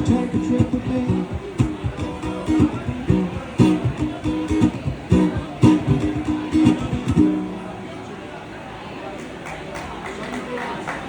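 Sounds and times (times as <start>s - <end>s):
guitar strumming: 0.0s - 8.3s.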